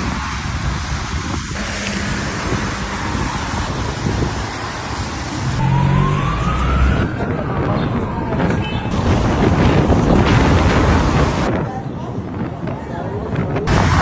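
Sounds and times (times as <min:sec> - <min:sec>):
driving rain: 0:00.0 - 0:14.0
wind: 0:00.0 - 0:14.0
rising whine: 0:01.5 - 0:04.8, 0:05.4 - 0:09.1.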